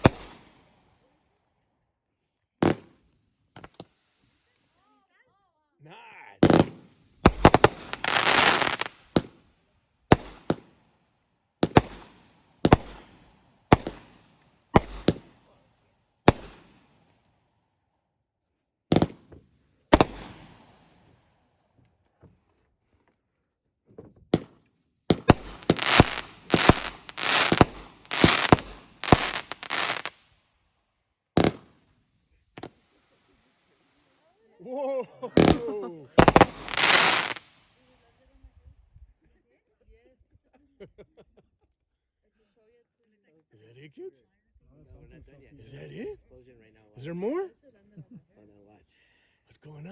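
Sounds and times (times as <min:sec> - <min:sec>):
fireworks banging: 0:00.0 - 0:00.6, 0:02.6 - 0:03.0, 0:03.6 - 0:04.1, 0:06.4 - 0:09.4, 0:10.1 - 0:10.9, 0:11.6 - 0:15.6, 0:16.3 - 0:17.2, 0:18.9 - 0:21.2, 0:24.4 - 0:30.2, 0:31.4 - 0:31.8, 0:32.6 - 0:33.3, 0:35.4 - 0:37.6.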